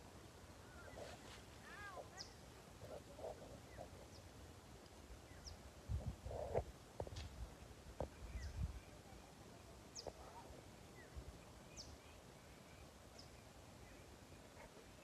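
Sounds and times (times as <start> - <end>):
faint bird chirps: 8.0 - 15.0.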